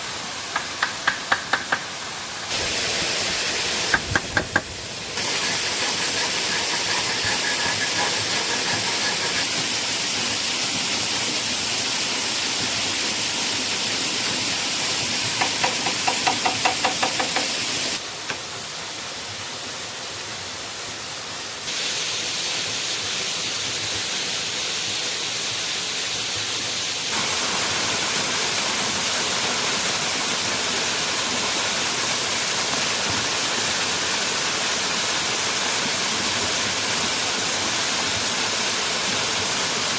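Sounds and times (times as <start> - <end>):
waterfall rushing: 0.0 - 12.1.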